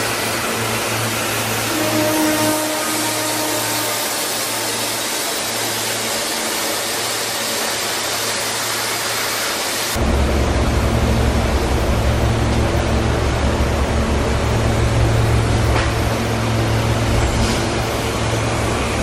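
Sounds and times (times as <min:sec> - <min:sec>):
train rolling along track: 0:00.0 - 0:19.0.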